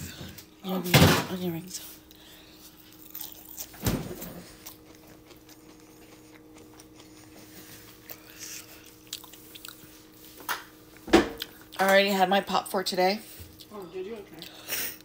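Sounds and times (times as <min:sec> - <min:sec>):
crunchy food chewing: 0:02.0 - 0:11.8, 0:13.5 - 0:15.0.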